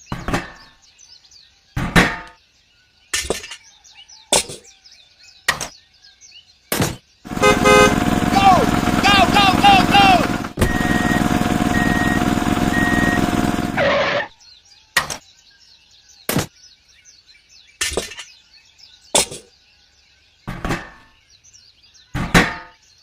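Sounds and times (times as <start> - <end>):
faint bird chirping: 0.0 - 7.3
loud steady mechanical noise: 7.3 - 14.3
sharp knocks: 20.5 - 21.1, 22.2 - 22.8.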